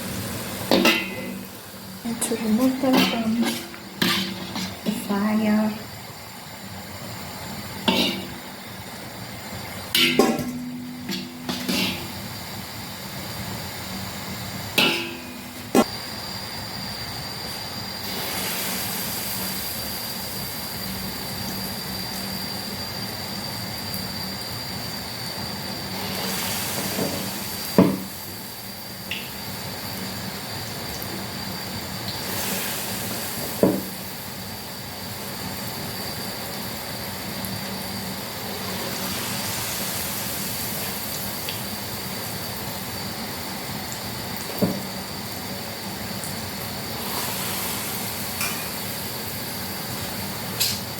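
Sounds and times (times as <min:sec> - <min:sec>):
dough sizzling in hot oil: 0:00.0 - 0:50.9
metal spoon knocking on pot: 0:10.0 - 0:12.1.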